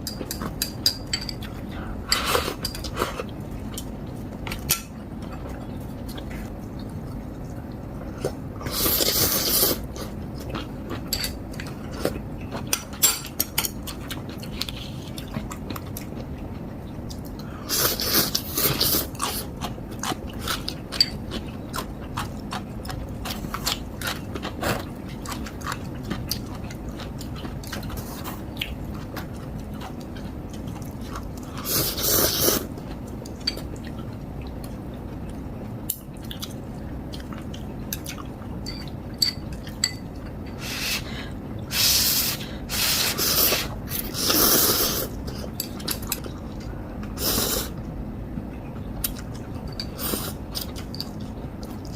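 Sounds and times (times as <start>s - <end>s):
chewing with wet clicks: 9.9s - 17.5s, 18.3s - 31.6s, 32.7s - 40.4s, 47.8s - 51.9s.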